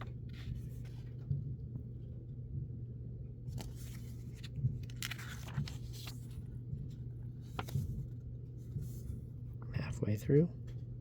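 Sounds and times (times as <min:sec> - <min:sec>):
pages being turned: 0:00.0 - 0:01.3, 0:03.5 - 0:06.5, 0:07.4 - 0:08.2
steady low hum: 0:00.0 - 0:11.0.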